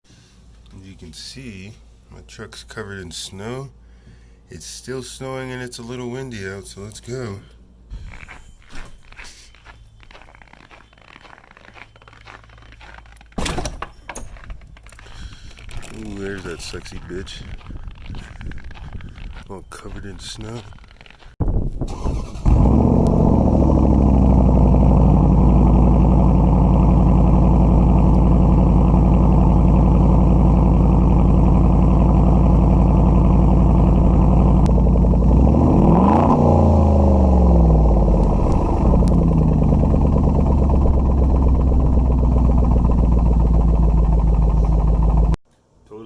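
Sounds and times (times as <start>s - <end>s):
engine revving: 21.9s - 45.4s
loud car engine idling: 23.0s - 45.4s.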